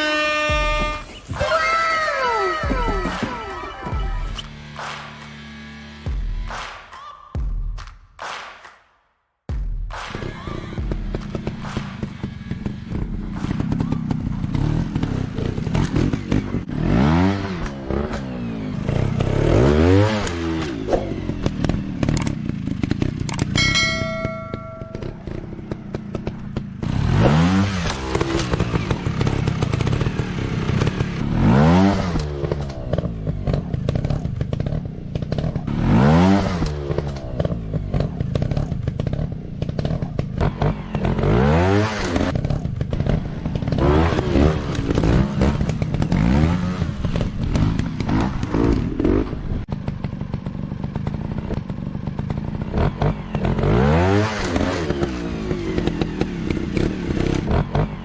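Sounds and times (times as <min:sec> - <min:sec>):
motorcycle engine revving: 0:10.2 - 0:58.0.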